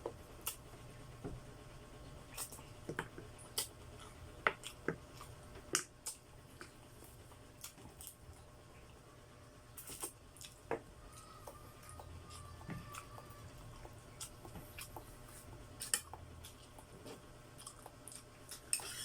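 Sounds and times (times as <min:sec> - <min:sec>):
chewing and sucking mouth sounds: 0:09.8 - 0:19.0.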